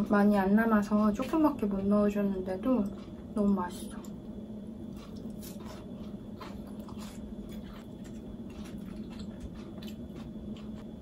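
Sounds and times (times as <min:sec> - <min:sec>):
low hum: 0:00.0 - 0:11.0
person chewing crispy pancake: 0:02.8 - 0:03.2, 0:04.8 - 0:11.0.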